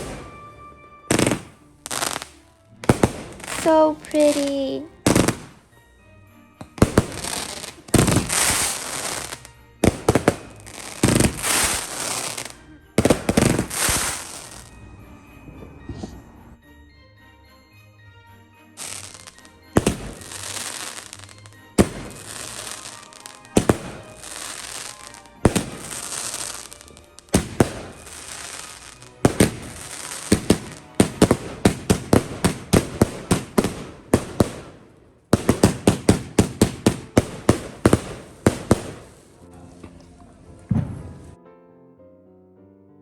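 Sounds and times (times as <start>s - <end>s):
firework crackling: 0.0s - 5.6s, 6.7s - 14.8s, 18.8s - 39.4s
firework bangs: 0.0s - 5.7s, 6.6s - 14.8s, 18.8s - 39.3s, 40.7s - 41.4s.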